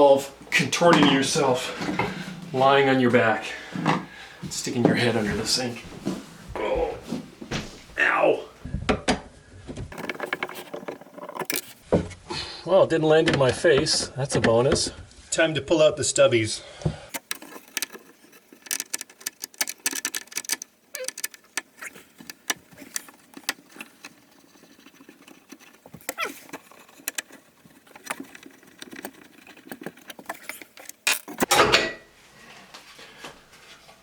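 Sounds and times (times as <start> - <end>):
screwdriver clicking and scraping: 9.9 - 11.8, 17.1 - 31.5
metal scrape and rattle: 17.2 - 32.0.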